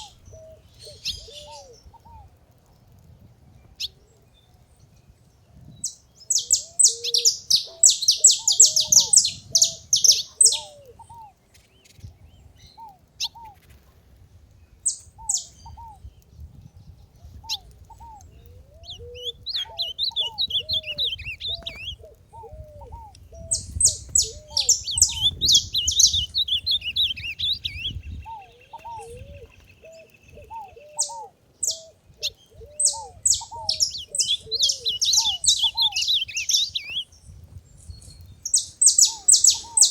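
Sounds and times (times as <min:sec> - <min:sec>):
bird low arching calls: 0:00.0 - 0:02.3, 0:05.8 - 0:11.4, 0:14.8 - 0:16.1, 0:17.2 - 0:39.9
finches chirping high notes: 0:18.9 - 0:22.0, 0:23.6 - 0:28.0, 0:32.9 - 0:37.0.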